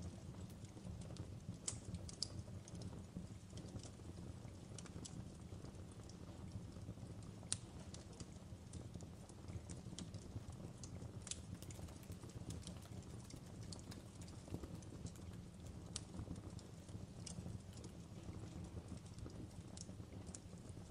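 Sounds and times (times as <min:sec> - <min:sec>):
fireplace crackling: 0:00.0 - 0:20.9.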